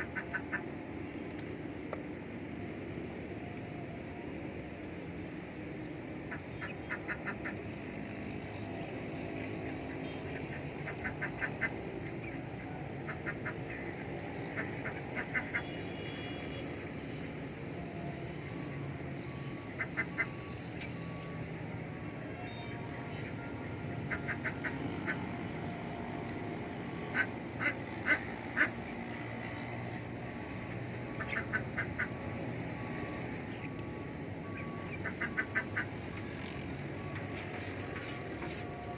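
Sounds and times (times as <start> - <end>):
ducks quacking: 0.0 - 0.6, 10.3 - 12.4, 13.0 - 15.8, 19.7 - 21.2, 22.8 - 25.6, 26.9 - 29.9, 30.6 - 32.2, 34.5 - 36.1.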